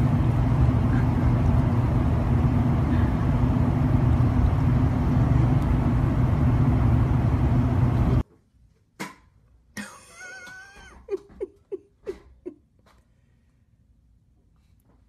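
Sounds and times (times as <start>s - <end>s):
low rumble with faint hum: 0.0s - 8.2s.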